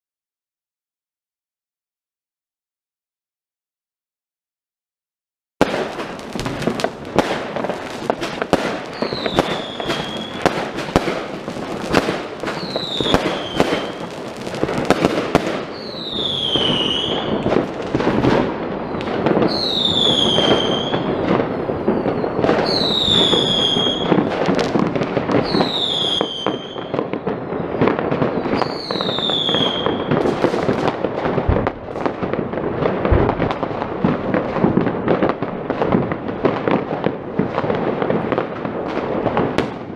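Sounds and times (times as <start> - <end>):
descending firework whistle: 5.6 - 30.9
fireworks cracks and bangs: 5.6 - 39.9.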